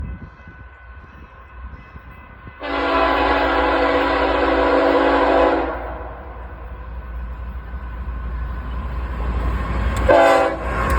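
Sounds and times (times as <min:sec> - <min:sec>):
train rumble: 0:00.0 - 0:10.9
locomotive air horn: 0:02.6 - 0:06.2, 0:10.1 - 0:10.9.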